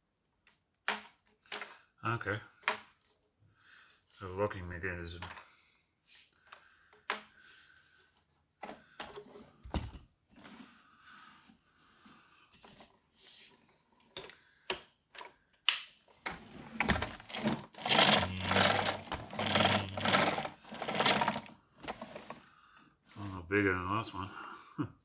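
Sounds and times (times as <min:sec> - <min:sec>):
plastic parts clicking and knocking: 0:00.4 - 0:01.9, 0:02.5 - 0:03.2, 0:06.5 - 0:07.4, 0:14.0 - 0:22.4
plastic rattling and rustling: 0:16.1 - 0:22.4.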